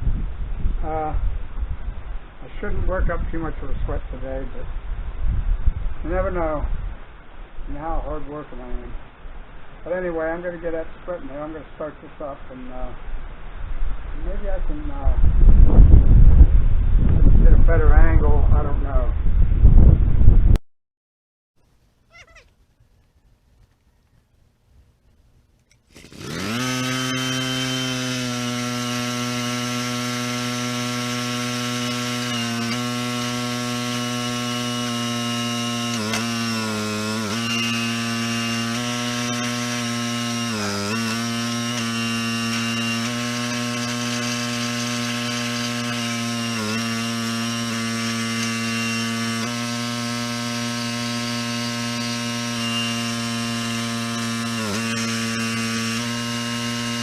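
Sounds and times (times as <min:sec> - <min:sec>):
log splitter humming: 0:25.1 - 0:57.0.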